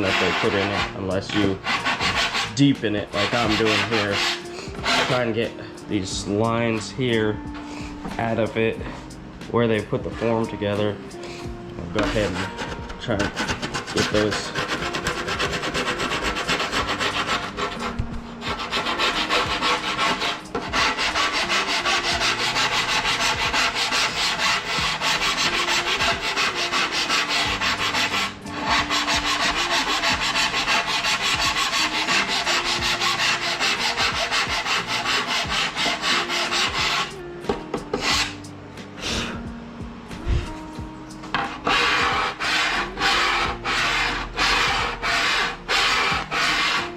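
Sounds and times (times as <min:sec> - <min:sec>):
hand file rasping on foam: 0:00.0 - 0:05.4, 0:12.0 - 0:37.2, 0:37.9 - 0:38.4, 0:41.4 - 0:46.9.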